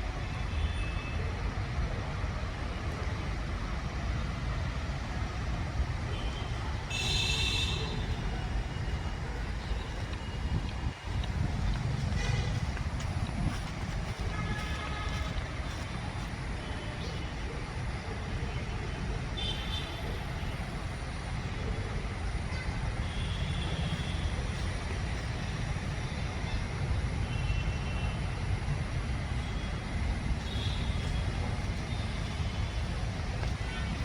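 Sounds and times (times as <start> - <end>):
city traffic rumble: 0.0 - 34.0.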